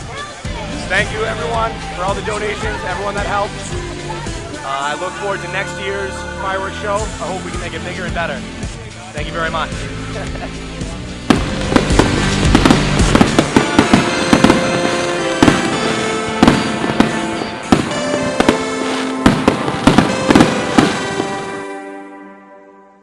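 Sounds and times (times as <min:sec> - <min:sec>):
music: 0:00.0 - 0:23.0
fireworks banging: 0:10.2 - 0:21.8.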